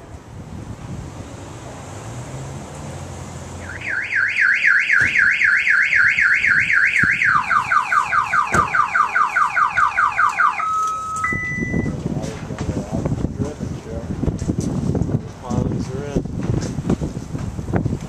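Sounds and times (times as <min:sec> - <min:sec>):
low wind rumble: 0:00.0 - 0:10.4, 0:11.1 - 0:18.0
car alarm siren: 0:03.6 - 0:12.0.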